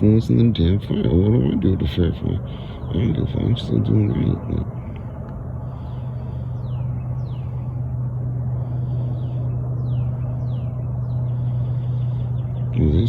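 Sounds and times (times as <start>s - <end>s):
steady low hum: 0.0s - 13.0s
birds whistling downward in pitch: 5.7s - 13.0s.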